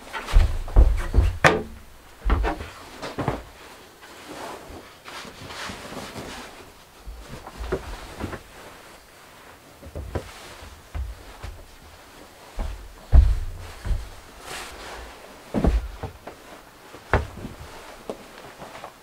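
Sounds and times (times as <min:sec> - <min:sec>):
low rumbling thumps: 0:00.0 - 0:02.7, 0:12.5 - 0:16.2
objects knocking and clattering: 0:00.0 - 0:03.5, 0:12.6 - 0:14.4.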